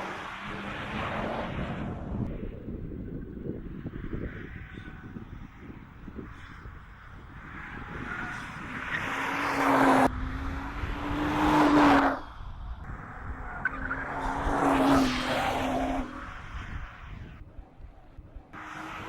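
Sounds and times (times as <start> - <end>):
car engine at high revs: 7.4 - 17.0, 18.5 - 19.0.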